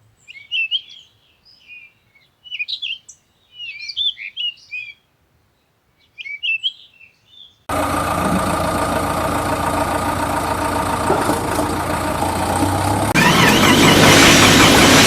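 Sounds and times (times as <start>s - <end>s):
vehicle engine running: 7.7s - 15.0s.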